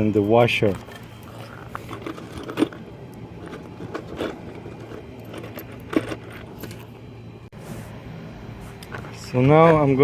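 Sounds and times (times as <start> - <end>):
metal nuts and washers clinking: 0.0 - 7.0
steady low hum: 0.0 - 10.0.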